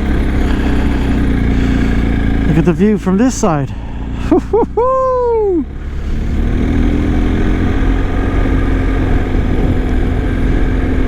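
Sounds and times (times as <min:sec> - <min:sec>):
motorcycle engine running: 0:00.0 - 0:11.0
road and wind noise: 0:00.0 - 0:11.0
person exclaiming: 0:04.3 - 0:05.8.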